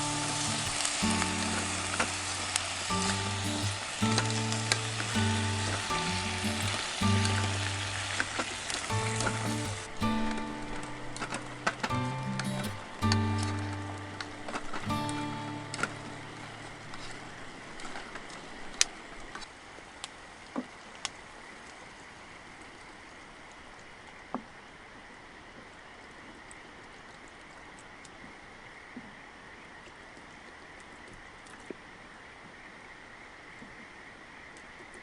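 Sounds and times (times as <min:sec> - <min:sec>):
river rushing: 0:00.0 - 0:18.5.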